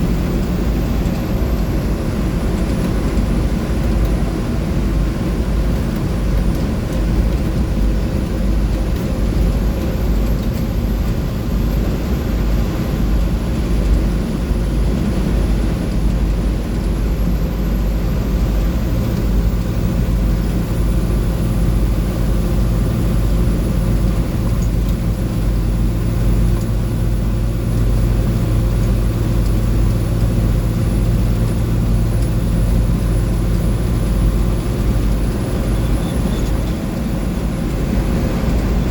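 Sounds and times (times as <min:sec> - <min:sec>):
bus diesel engine running: 0:00.0 - 0:38.9
road and drivetrain rumble: 0:00.0 - 0:38.9.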